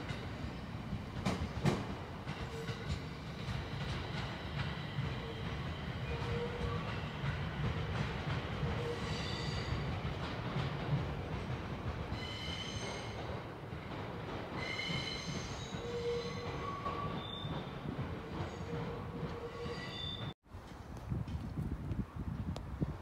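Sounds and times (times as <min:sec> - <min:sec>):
train wheels rumbling on rails: 0:00.0 - 0:23.0
high-pitched wheel squeals: 0:19.4 - 0:20.3.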